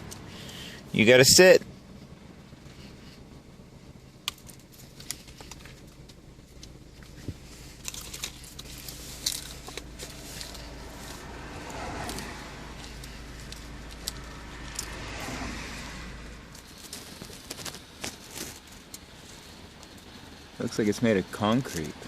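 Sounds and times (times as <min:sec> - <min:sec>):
low steady hum: 0:00.0 - 0:22.0
clicks and crinkles of treat: 0:04.3 - 0:11.2, 0:16.5 - 0:19.1.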